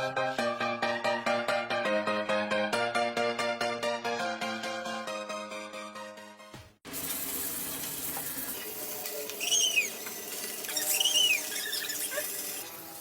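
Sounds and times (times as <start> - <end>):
background music: 0.0 - 6.8
short squeaks rising and falling: 9.4 - 12.5.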